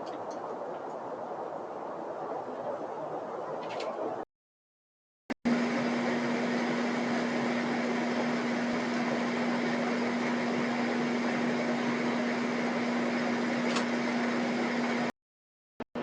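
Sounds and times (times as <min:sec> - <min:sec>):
mechanical hum: 0:05.5 - 0:15.1.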